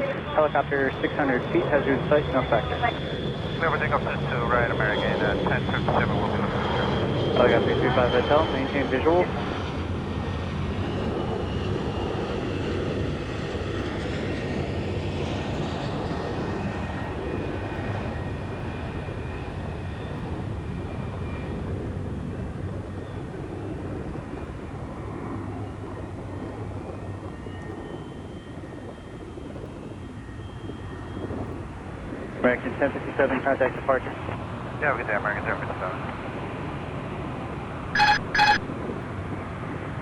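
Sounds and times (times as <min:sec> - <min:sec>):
thin engine whine: 0:00.0 - 0:19.3
jet airliner taking off: 0:00.0 - 0:40.0.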